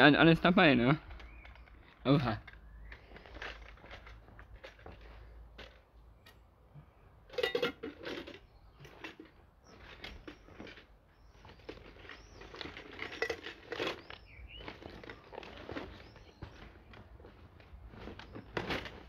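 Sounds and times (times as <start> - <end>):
camping gear rustling and clattering: 1.0 - 19.0.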